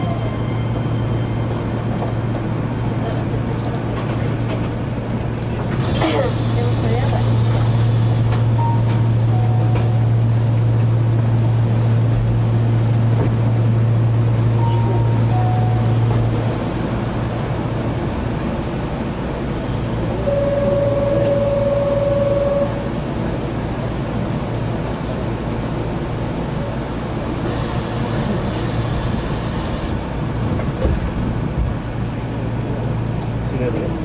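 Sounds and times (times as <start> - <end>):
train equipment hum: 0.0 - 34.0
short beeps: 14.6 - 16.0, 20.2 - 22.8
buzzer tone: 20.2 - 22.8.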